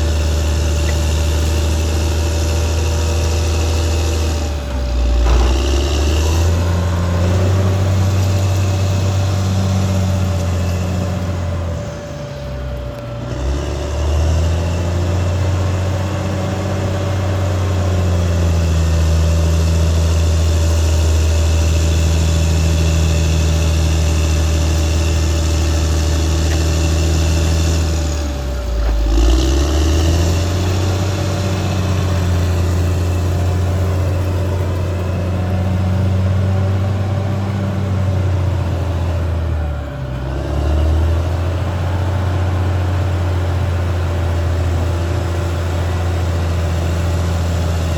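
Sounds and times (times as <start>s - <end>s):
bulldozer diesel engine running: 0.0s - 47.9s.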